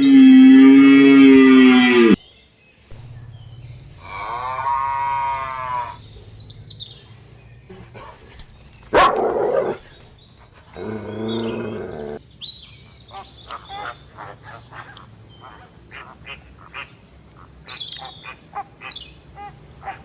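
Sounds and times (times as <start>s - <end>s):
high bird chirps: 2.9s - 7.0s
dog barking: 8.9s - 9.8s.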